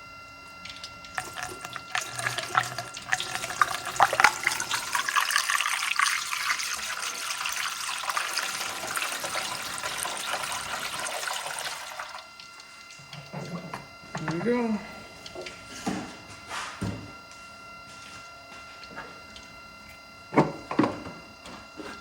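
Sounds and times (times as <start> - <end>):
liquid pouring into reservoir: 0.7 - 14.0.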